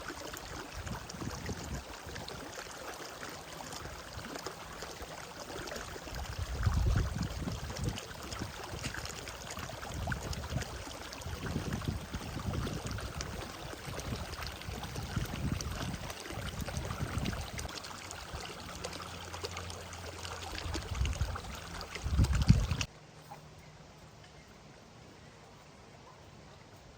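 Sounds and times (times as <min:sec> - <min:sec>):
flowing water hiss: 0:00.0 - 0:23.4.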